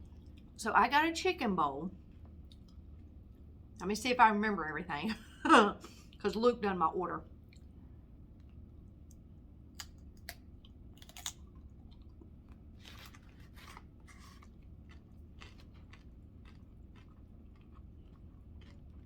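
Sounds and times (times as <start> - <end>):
faint chewing: 0.0 - 0.6, 2.0 - 3.5, 7.4 - 9.2, 9.8 - 19.0.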